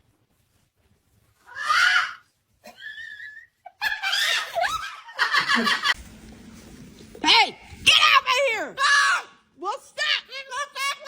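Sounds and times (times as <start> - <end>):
cackling laughter: 2.7 - 6.0.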